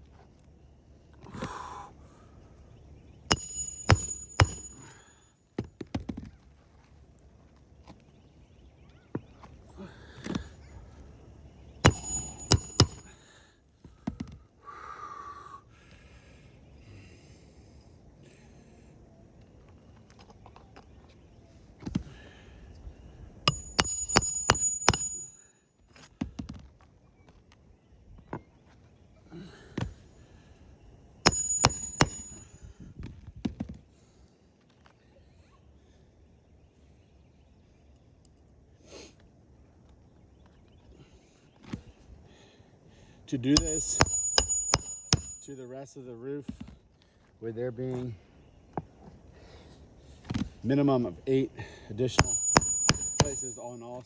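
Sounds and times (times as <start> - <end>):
hammer blows on metal: 3.3 - 5.0, 11.9 - 13.1, 23.5 - 25.4, 31.3 - 32.6, 43.5 - 45.6, 52.1 - 53.9
light hammer taps: 43.6 - 45.5, 52.2 - 53.6.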